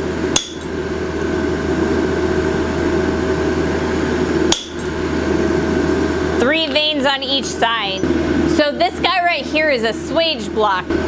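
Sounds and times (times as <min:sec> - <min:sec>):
hammer strikes on steel: 0:00.4 - 0:00.7, 0:04.5 - 0:04.9.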